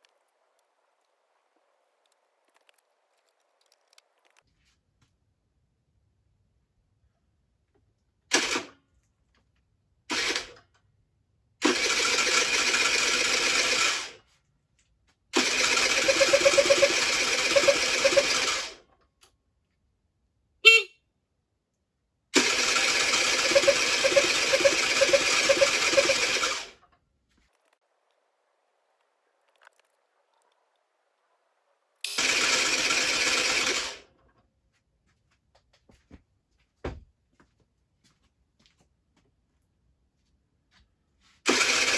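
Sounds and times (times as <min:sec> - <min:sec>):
engine cranking by electric starter: 0:08.3 - 0:08.8, 0:10.1 - 0:10.6, 0:11.6 - 0:14.2, 0:15.4 - 0:18.9, 0:22.4 - 0:26.8, 0:32.0 - 0:34.2, 0:41.5 - 0:41.9.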